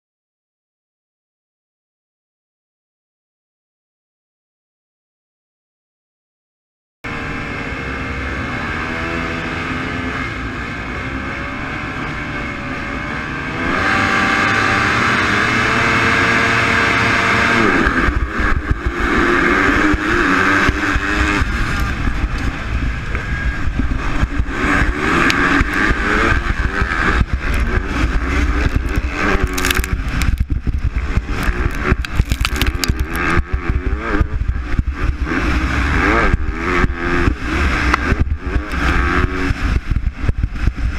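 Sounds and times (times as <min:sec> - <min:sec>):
motocross bikes revving: 0:07.1 - 0:40.9.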